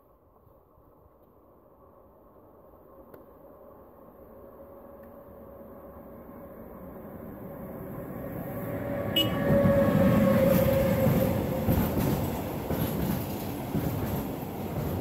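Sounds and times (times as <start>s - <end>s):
train wheels rumbling on rail: 6.2s - 15.0s.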